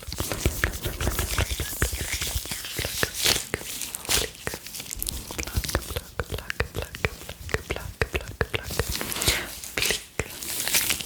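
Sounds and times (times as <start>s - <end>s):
gloves rubbing: 0.0s - 11.0s
mouth clicks and pops: 0.2s - 10.4s.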